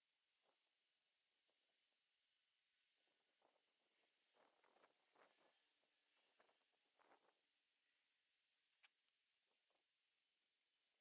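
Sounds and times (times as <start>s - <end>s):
faint scrapes and clicks: 8.4s - 9.9s.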